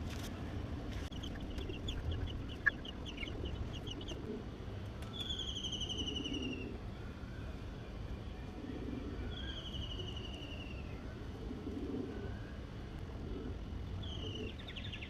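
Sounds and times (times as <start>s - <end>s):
low background noise: 0.0s - 15.0s
bird calls: 1.1s - 4.3s.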